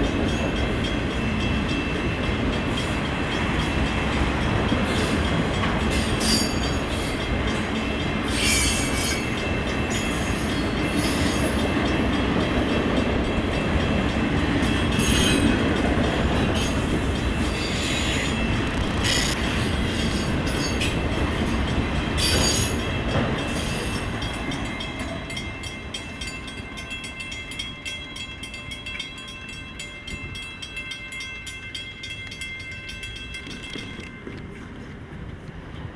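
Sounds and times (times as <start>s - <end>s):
train wheels rumbling on rails: 0.0s - 35.9s
level-crossing bell ringing: 20.0s - 34.4s.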